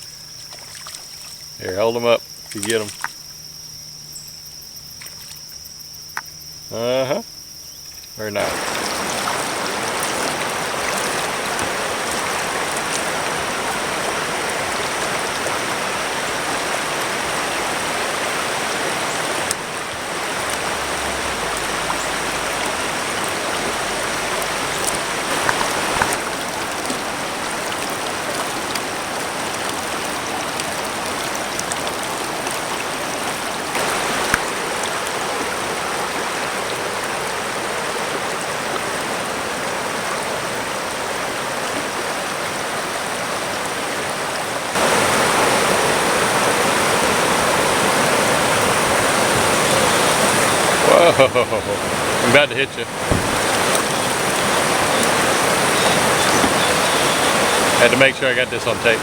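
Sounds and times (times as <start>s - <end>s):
river water flowing: 0.0s - 59.0s
faint clicks: 24.4s - 27.0s.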